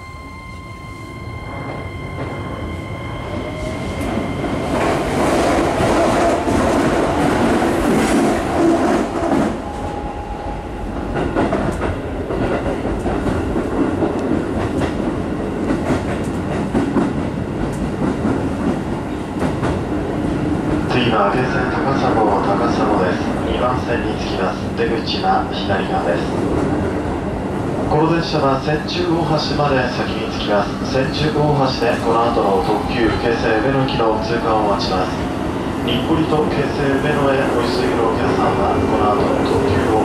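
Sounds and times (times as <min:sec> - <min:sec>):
train wheels rumbling on rail: 0:00.2 - 0:40.0
rail joint clicks: 0:00.4 - 0:10.0, 0:10.9 - 0:21.2.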